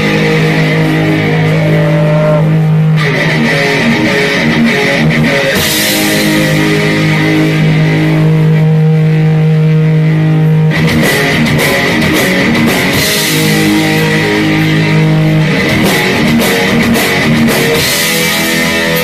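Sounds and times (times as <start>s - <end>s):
heavy metal band playing: 0.0s - 19.0s
drums and cymbals crashing: 15.6s - 19.0s.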